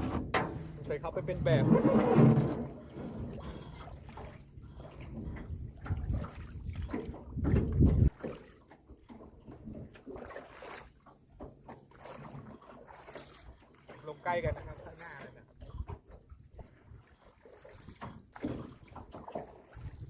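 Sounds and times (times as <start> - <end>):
knocks from boat: 0.0 - 10.8, 17.7 - 20.0
water lapping: 0.0 - 20.0
wind noise on microphone: 5.1 - 8.2, 19.8 - 20.0.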